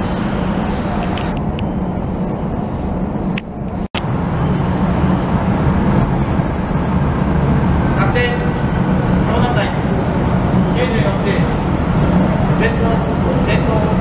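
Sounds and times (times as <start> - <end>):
train low rumble: 0.0 - 14.0.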